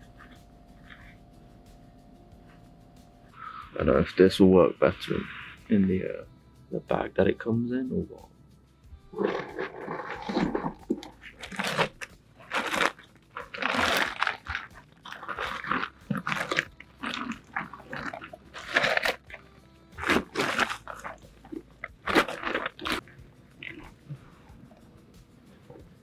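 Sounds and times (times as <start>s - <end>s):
gear rustling and crunching in bag: 9.1s - 24.8s.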